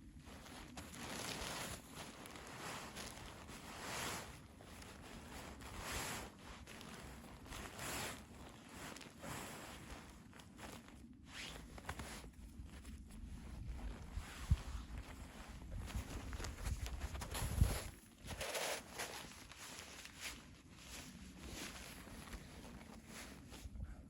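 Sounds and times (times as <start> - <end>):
footsteps crunching in snow: 0.0 - 23.7.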